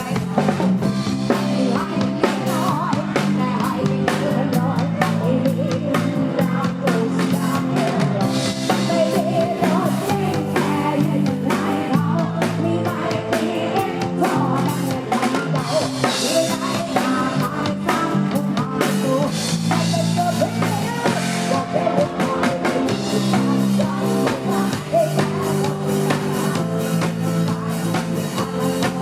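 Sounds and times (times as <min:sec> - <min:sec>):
bass guitar: 0:00.0 - 0:29.0
drum kit beat: 0:00.0 - 0:29.0
electric guitar: 0:00.0 - 0:29.0.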